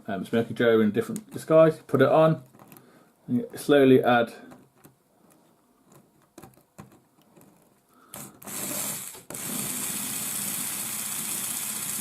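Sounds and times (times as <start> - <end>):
small electric motor running: 8.4 - 12.0.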